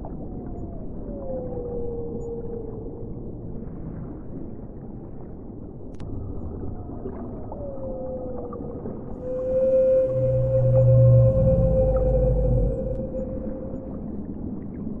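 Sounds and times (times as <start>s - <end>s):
whale song: 0.1s - 3.8s, 7.2s - 15.0s
low underwater rumble: 6.2s - 15.0s.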